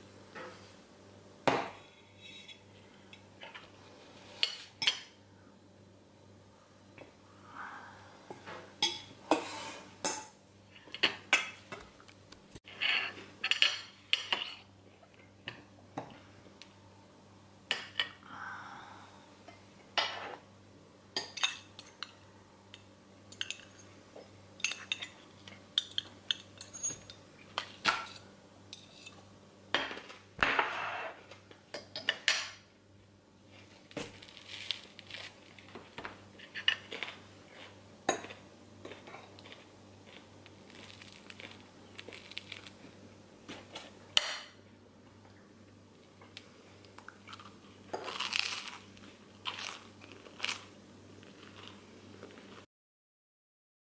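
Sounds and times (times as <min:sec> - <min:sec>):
dishes and pots clinking: 0:01.5 - 0:02.7, 0:22.8 - 0:32.6.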